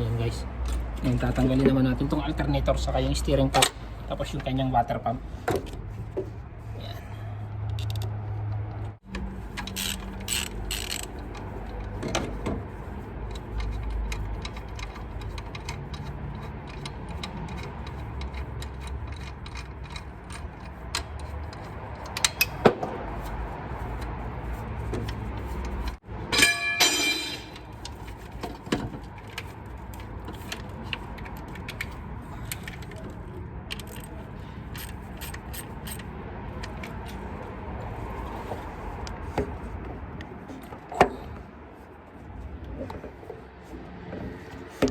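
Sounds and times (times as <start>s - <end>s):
ratchet wrench clicking: 9.1s - 12.3s, 13.2s - 22.6s, 33.7s - 37.0s
metal tools clinking: 25.8s - 37.2s.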